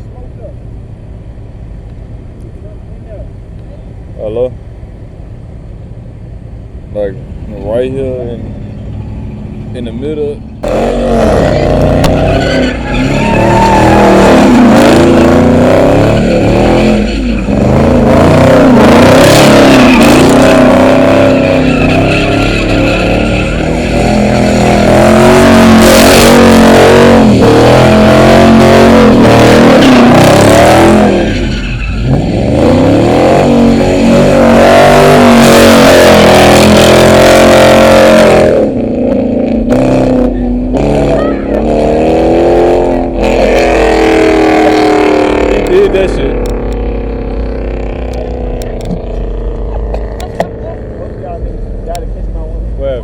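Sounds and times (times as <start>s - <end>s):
car engine revving hard: 9.0s - 52.0s
tyre squeal: 10.9s - 36.2s.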